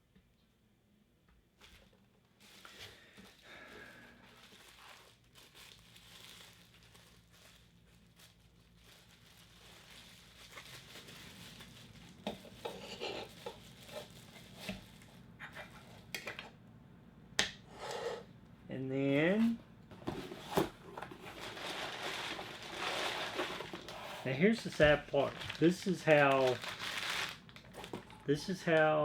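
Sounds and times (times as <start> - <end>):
packaging crinkling: 1.7 - 15.2, 20.4 - 29.0.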